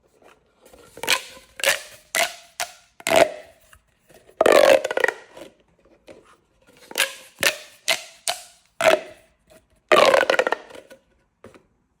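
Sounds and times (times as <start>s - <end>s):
plastic pop tubes popping: 1.0s - 3.6s, 4.4s - 5.4s, 6.9s - 9.2s, 9.9s - 10.9s.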